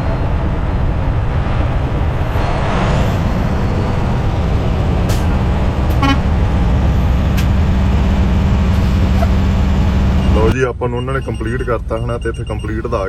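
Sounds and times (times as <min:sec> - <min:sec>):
diesel truck engine idling: 0:03.3 - 0:13.0
short horn toot: 0:06.0 - 0:06.3.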